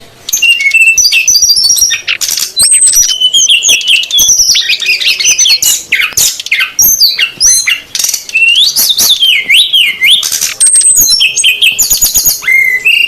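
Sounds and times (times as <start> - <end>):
birds chirping and whistling: 0.0 - 13.0
harsh buzzy bird calls: 0.0 - 13.0.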